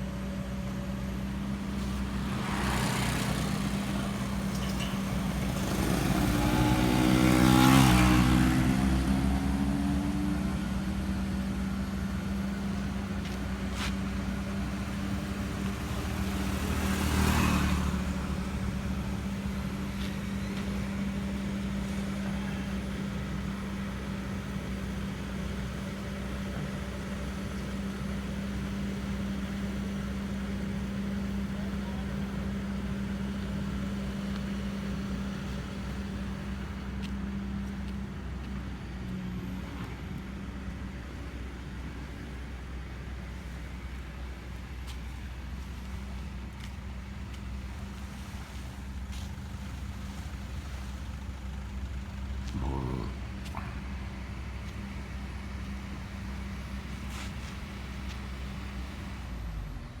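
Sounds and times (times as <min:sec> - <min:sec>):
engine droning: 0:00.0 - 1:00.0.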